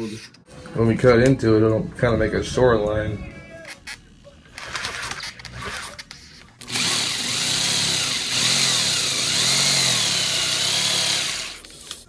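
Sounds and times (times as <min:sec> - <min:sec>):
jigsaw cutting foam: 0:06.6 - 0:12.0.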